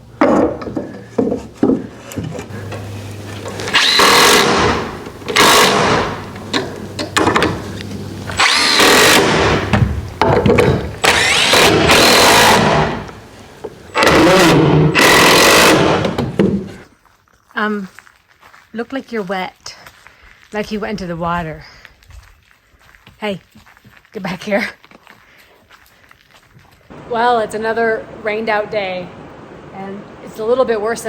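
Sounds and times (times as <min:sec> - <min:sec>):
power drill whining: 0:02.5 - 0:16.8.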